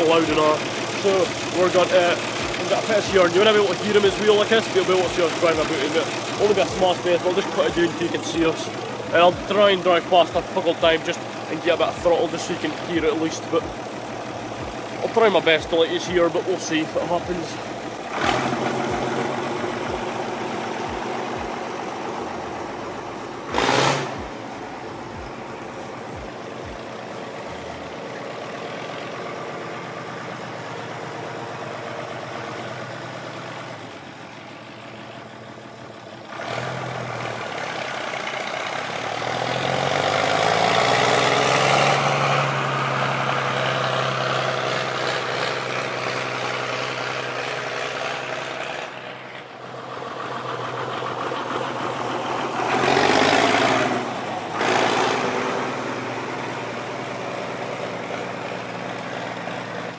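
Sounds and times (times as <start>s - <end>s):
tractor diesel engine passing: 0.0s - 59.9s.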